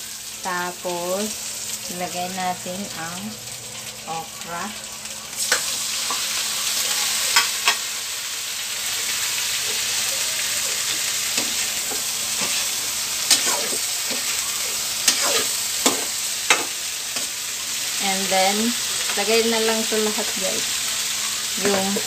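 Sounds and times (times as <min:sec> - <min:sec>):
food sizzling in wok: 0:00.0 - 0:22.0
metal ladle scraping wok: 0:10.8 - 0:17.4.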